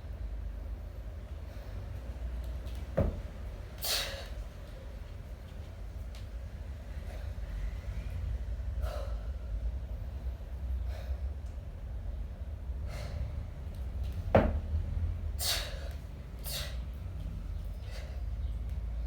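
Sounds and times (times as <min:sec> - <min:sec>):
steady low rumble: 0:00.0 - 0:19.0
person breathing forcefully: 0:08.7 - 0:11.4, 0:12.8 - 0:13.6, 0:15.4 - 0:16.9.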